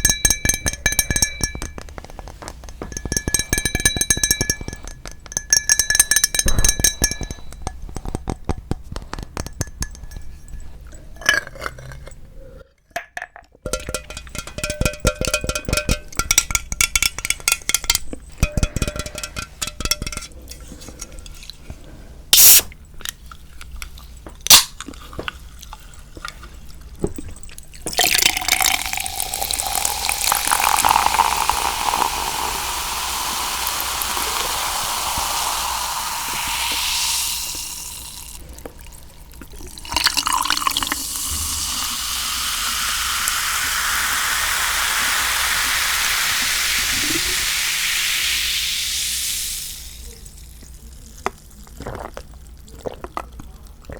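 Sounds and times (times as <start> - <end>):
liquid pouring: 27.5 - 53.6.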